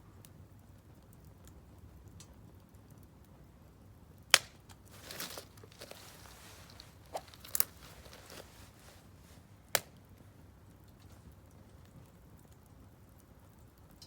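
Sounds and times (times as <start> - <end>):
firewood popping and crackling: 4.0 - 14.0.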